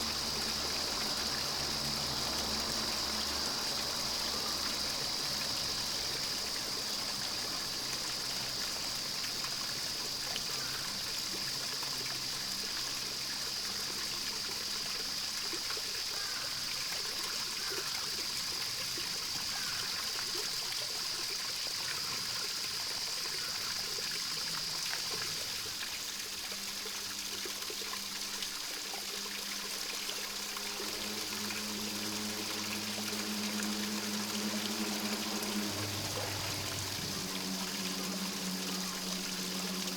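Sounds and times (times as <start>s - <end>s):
water trickling: 0.0s - 39.9s
high-pitched hum: 29.8s - 39.9s.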